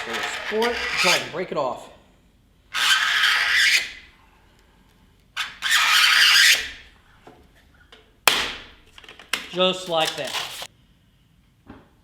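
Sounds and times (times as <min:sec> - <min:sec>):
scoring tool scraping acrylic sheet: 0:00.0 - 0:01.3, 0:02.8 - 0:04.0, 0:05.4 - 0:06.8.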